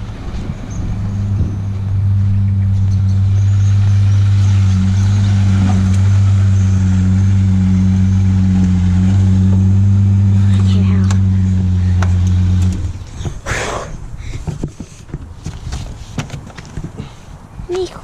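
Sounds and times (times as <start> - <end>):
car engine droning: 0.0 - 15.3.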